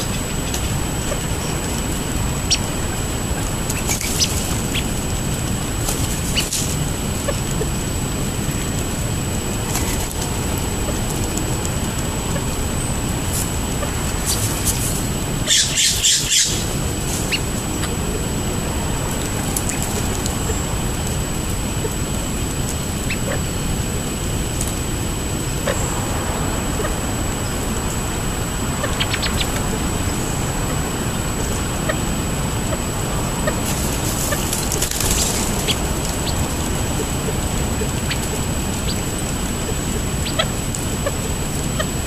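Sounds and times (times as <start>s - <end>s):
harsh squawks: 15.4s - 18.3s.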